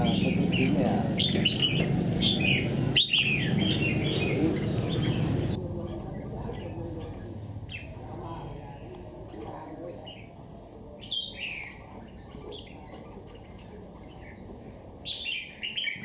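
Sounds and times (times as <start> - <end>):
bird chirping downward: 0.0 - 10.4.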